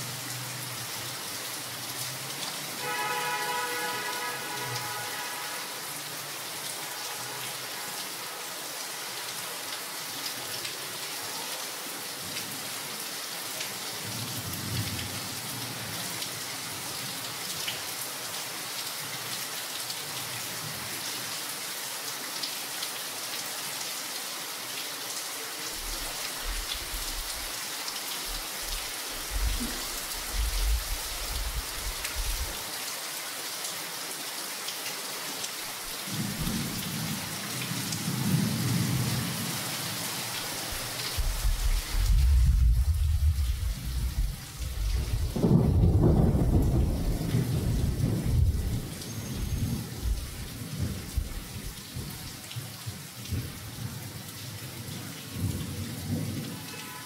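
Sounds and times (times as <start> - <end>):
steady rain hiss: 0.0 - 57.0
low rumbles: 41.2 - 45.4.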